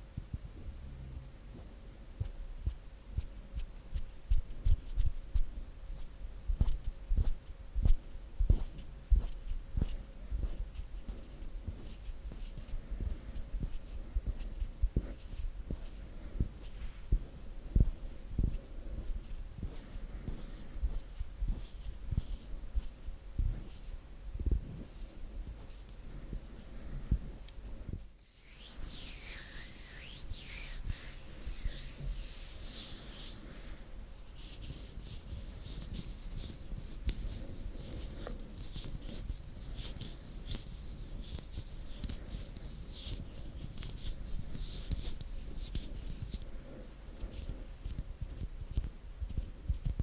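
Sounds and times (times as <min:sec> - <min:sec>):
faint steady hum: 0:00.0 - 0:50.0
hands rubbing together: 0:28.0 - 0:39.0.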